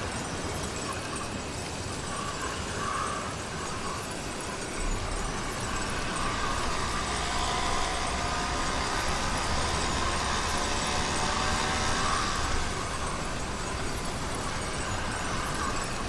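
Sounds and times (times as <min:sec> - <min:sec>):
two-stroke engine running: 0:04.9 - 0:16.0.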